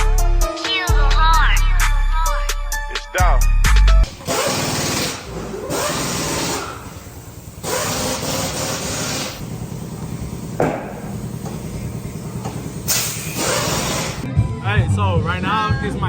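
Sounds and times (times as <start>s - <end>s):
power tool running: 4.1s - 14.3s.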